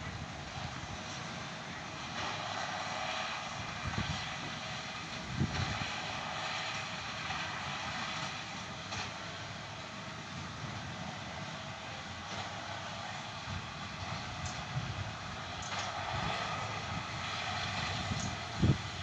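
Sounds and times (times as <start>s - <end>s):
distant tractor engine drone: 0.0s - 19.0s
wind buffeting microphone: 3.5s - 6.1s, 13.3s - 19.0s.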